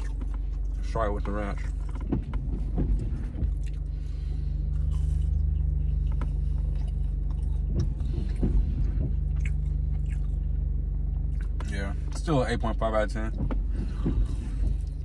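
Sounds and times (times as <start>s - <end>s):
car engine humming: 0.0s - 15.0s
person chewing crunchy food: 4.6s - 8.5s, 9.2s - 10.5s.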